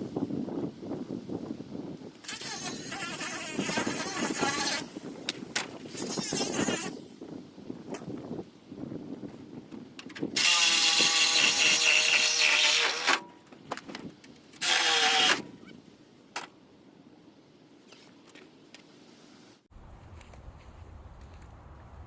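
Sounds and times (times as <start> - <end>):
power drill running: 14.6 - 15.4.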